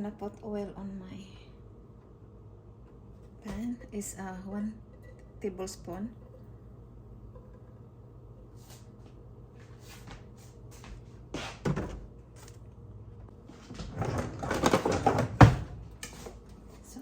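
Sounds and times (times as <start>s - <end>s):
clattering knocks and rattles: 13.7s - 15.8s.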